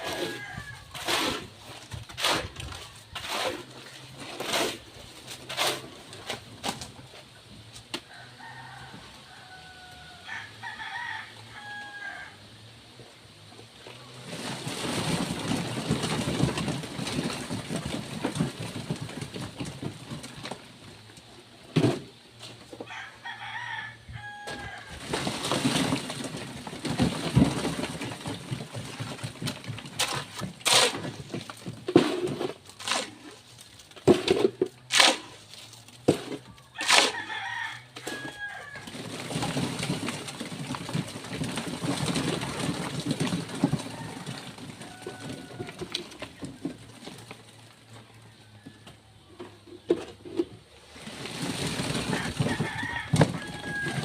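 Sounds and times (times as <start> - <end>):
rooster crowing: 0.0 - 1.1, 8.1 - 12.4, 22.9 - 25.0, 36.7 - 39.0, 52.0 - 54.0
rough scraping noise: 0.0 - 7.3, 23.6 - 47.6.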